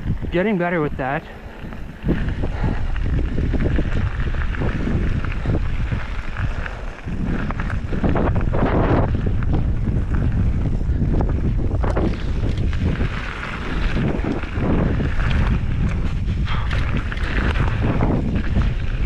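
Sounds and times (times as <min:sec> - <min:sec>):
mountain bike rattling on dirt trail: 0:00.0 - 0:19.0
wind buffeting microphone: 0:00.0 - 0:19.0.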